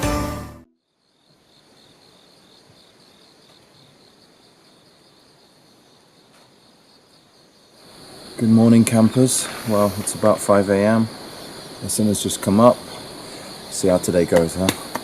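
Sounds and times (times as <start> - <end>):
music: 0.0 - 0.7
insects chirping in a trill: 0.7 - 15.0.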